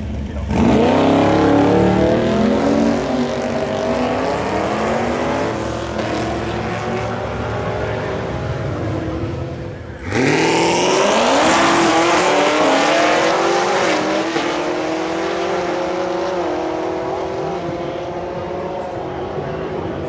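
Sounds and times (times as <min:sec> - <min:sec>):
drag racing car accelerating: 0:00.0 - 0:20.0.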